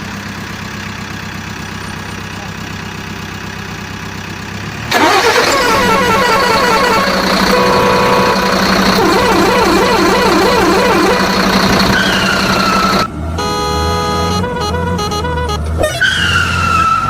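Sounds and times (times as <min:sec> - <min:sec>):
warbling siren-like tones: 0:05.6 - 0:14.5
electronic buzzing tone: 0:06.9 - 0:15.6.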